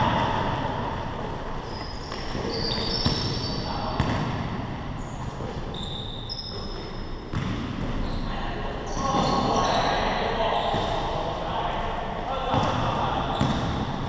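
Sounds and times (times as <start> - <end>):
sneakers squeaking on court: 1.6 - 4.4, 5.0 - 11.1, 12.5 - 14.0
basketball bouncing: 4.0 - 4.5, 7.3 - 8.0, 13.4 - 14.0.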